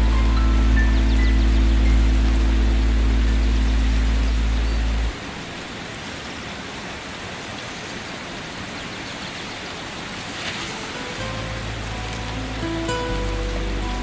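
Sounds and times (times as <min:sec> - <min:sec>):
low held music tones: 0:00.0 - 0:05.8, 0:10.7 - 0:14.0
water hissing: 0:10.2 - 0:14.0.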